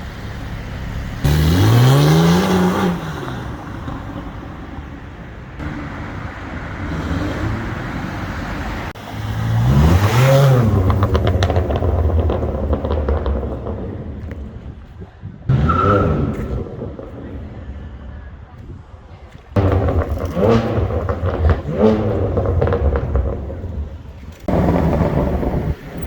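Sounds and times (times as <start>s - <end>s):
car engine revving: 1.2s - 14.8s, 19.6s - 26.0s
exhaust crackles and pops: 9.9s - 26.0s.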